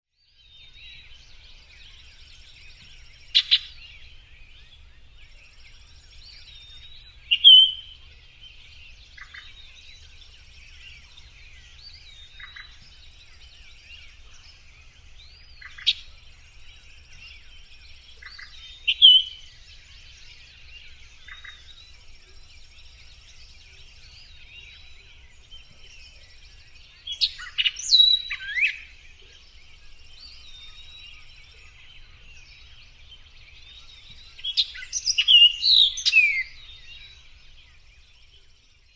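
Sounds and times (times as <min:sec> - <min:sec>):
small birds chirping chorus: 0:00.1 - 0:38.9
loud single bird chirps: 0:01.9 - 0:04.0, 0:06.6 - 0:08.0, 0:27.0 - 0:32.2, 0:33.6 - 0:37.2.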